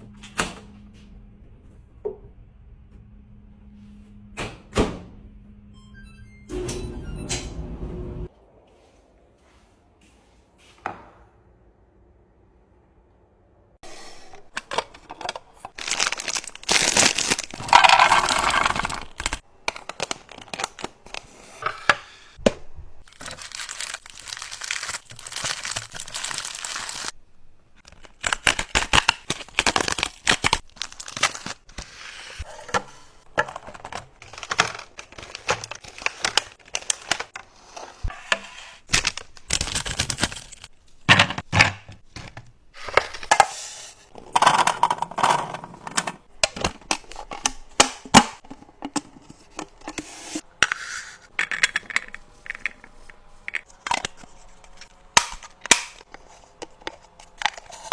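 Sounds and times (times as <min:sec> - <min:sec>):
plastic packaging crinkling and tearing: 0:14.4 - 0:21.4, 0:23.0 - 0:27.2, 0:27.8 - 0:32.4, 0:33.2 - 0:37.4, 0:38.8 - 0:41.1, 0:51.4 - 0:57.9.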